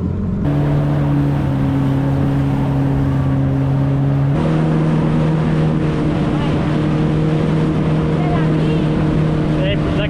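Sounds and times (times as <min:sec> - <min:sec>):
jet ski engine running: 0:00.0 - 0:10.0.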